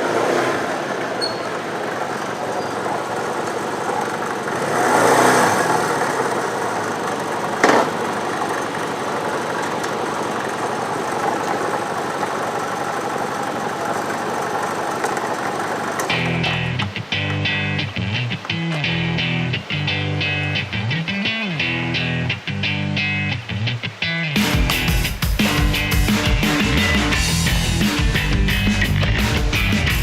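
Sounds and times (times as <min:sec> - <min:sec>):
vehicle engine and road noise: 0:00.0 - 0:30.0
guitar music: 0:16.0 - 0:30.0.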